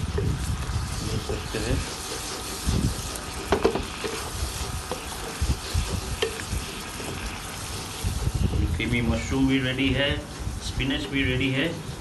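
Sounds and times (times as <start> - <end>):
spoon knocking and scraping pan: 0.0 - 8.4
food sizzling in a pan: 0.0 - 11.2.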